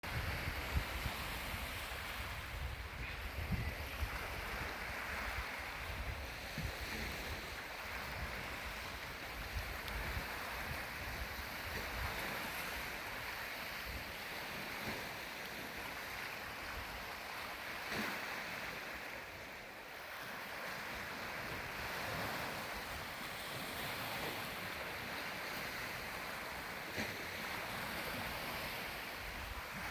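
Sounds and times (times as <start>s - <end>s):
wind buffeting microphone: 0.0s - 14.6s
waves washing on shore: 0.0s - 29.9s.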